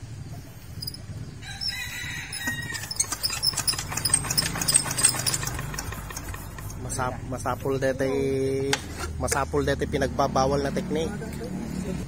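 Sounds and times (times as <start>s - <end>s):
rooster crowing: 1.4s - 3.2s.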